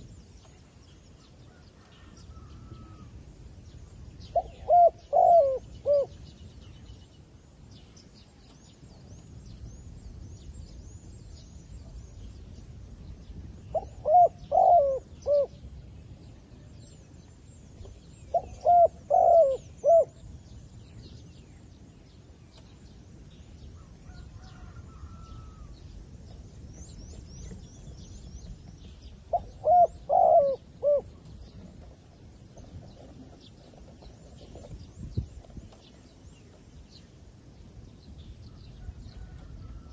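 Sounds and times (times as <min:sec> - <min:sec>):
small birds chirping: 0:00.0 - 0:39.9
dove cooing staccato notes: 0:04.4 - 0:06.1, 0:13.8 - 0:15.5, 0:18.3 - 0:20.1, 0:29.3 - 0:31.1.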